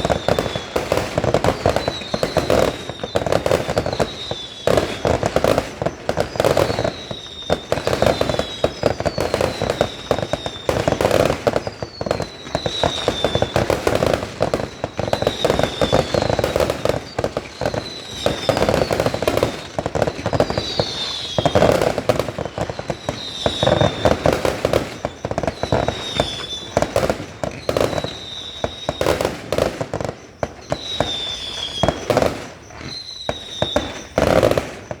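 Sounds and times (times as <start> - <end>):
firework whistles: 0.0 - 35.0
fireworks bangs and crackling: 0.0 - 35.0.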